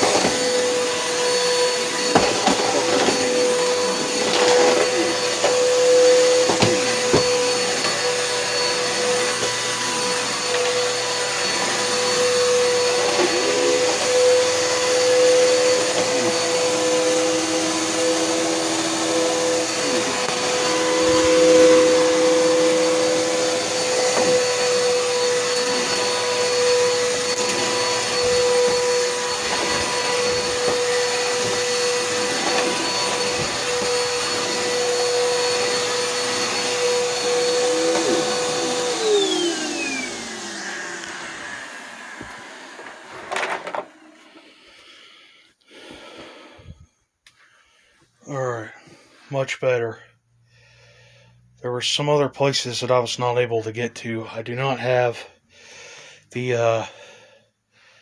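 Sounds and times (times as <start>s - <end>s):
vacuum cleaner whining: 0.0s - 50.1s.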